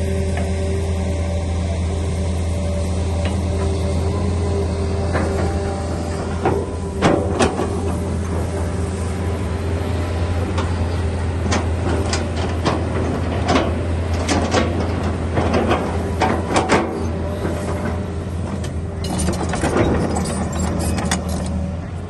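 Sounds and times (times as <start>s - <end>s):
excavator diesel engine running: 0.0s - 22.0s
metallic clanks and knocks: 18.6s - 21.7s.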